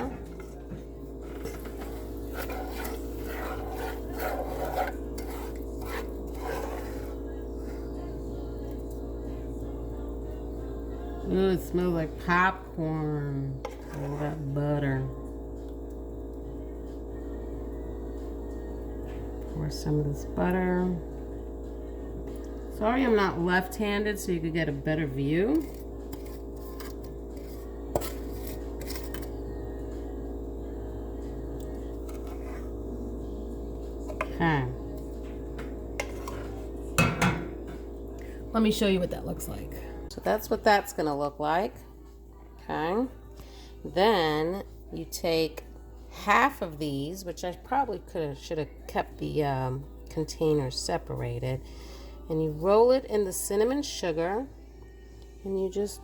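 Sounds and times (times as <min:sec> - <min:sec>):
steady background hum: 0:00.0 - 0:56.0
rasping scrapes into a pan: 0:01.2 - 0:07.8, 0:13.6 - 0:14.4, 0:25.6 - 0:29.3, 0:32.1 - 0:32.7, 0:36.0 - 0:36.6.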